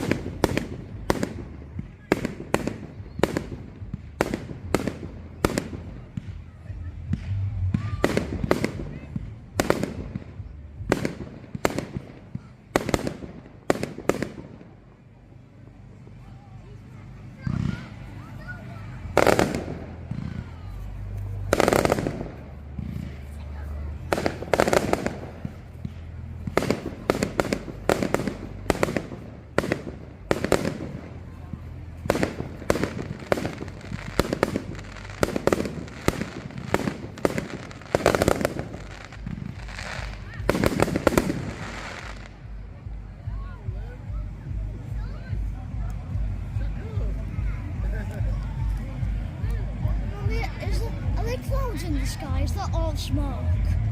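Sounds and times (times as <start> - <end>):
fireworks bangs: 0.0 - 15.0, 17.4 - 43.2
fireworks crackling: 0.0 - 53.9.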